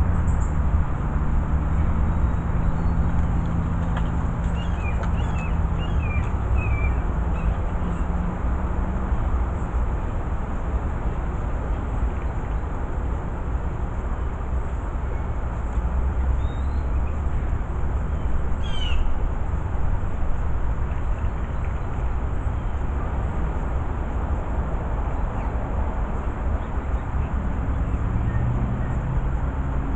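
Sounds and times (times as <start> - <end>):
low outdoor rumble: 0.0 - 29.9
small birds chirping: 2.0 - 8.1.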